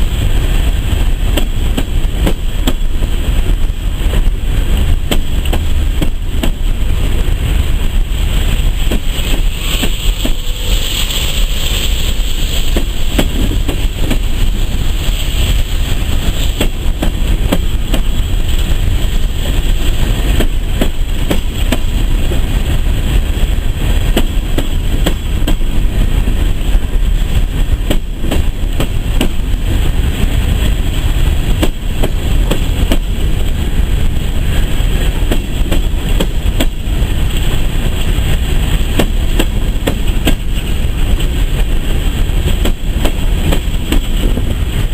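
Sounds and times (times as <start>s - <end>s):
freight train rumbling past: 0.0s - 44.9s
wheels clicking over rail joints: 0.0s - 44.9s.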